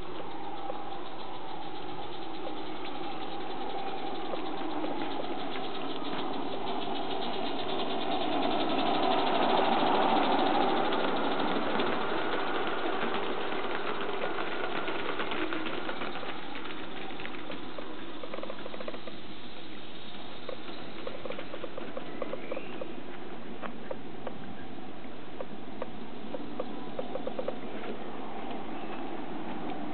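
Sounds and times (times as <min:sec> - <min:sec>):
model locomotive ticking: 0:00.0 - 0:23.0.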